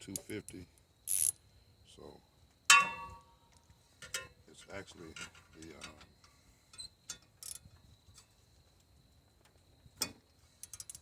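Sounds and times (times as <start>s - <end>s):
tools clicking on metal parts: 10.6s - 11.0s.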